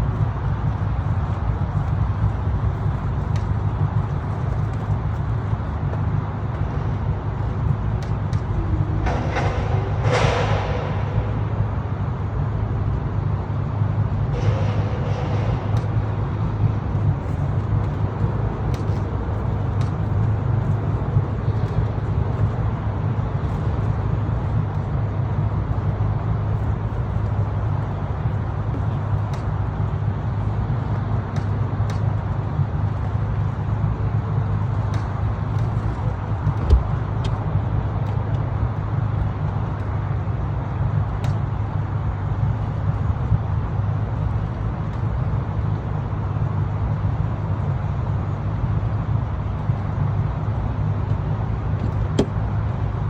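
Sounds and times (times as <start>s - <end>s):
thump: 51.8s - 52.4s.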